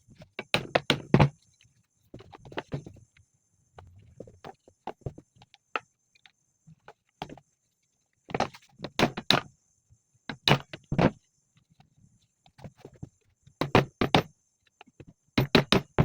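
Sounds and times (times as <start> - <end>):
tools and parts clattering: 15.4 - 16.0.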